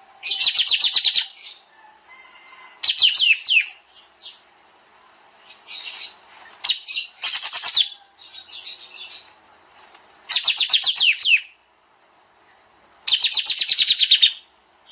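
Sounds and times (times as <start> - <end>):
bird chattering: 0.2 - 1.6, 5.5 - 9.3, 10.3 - 11.5, 13.0 - 14.5.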